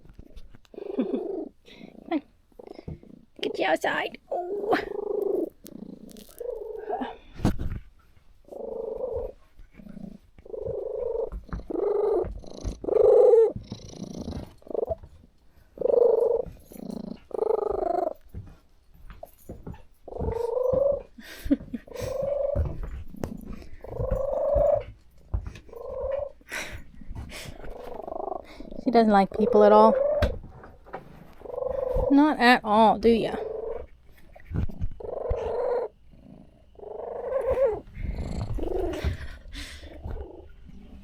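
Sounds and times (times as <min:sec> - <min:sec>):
cat meowing: 0:36.9 - 0:39.0.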